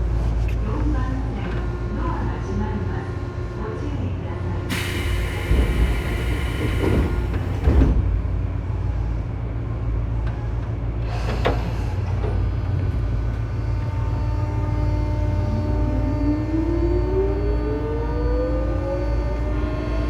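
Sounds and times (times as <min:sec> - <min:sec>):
train low rumble: 0:00.0 - 0:20.0
air hiss: 0:04.7 - 0:07.8
train doors closing thud: 0:04.7 - 0:08.2
train motor whine: 0:04.7 - 0:08.2, 0:13.4 - 0:20.0.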